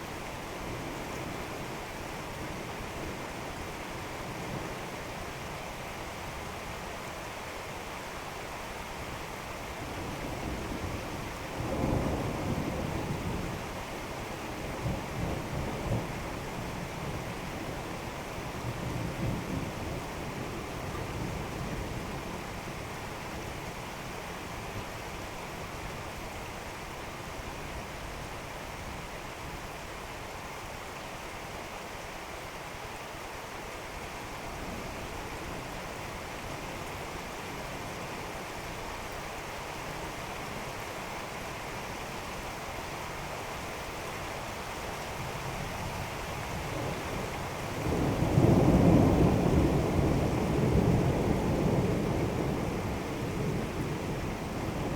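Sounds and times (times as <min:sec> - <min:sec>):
steady rain: 0:00.0 - 0:54.9
rolling thunder: 0:47.8 - 0:54.9.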